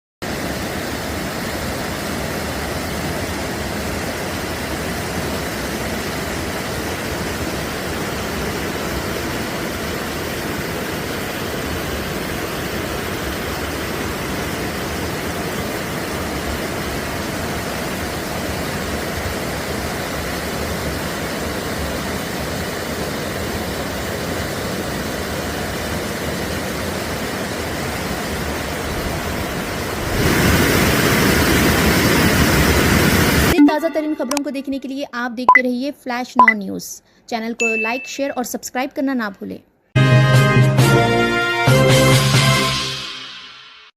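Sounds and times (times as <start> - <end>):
floodwater rushing: 0.2 - 33.6.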